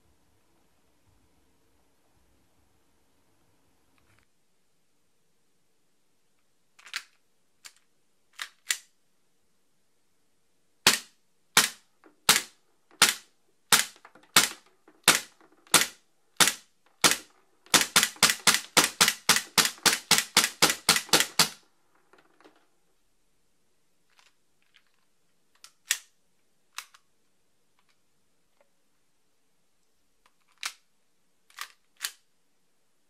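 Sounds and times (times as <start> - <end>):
airsoft pistol shots: 10.9 - 21.6.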